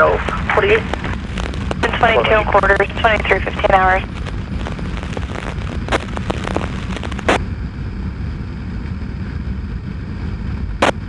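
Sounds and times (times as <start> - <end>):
radio static burst: 0.0 - 7.4.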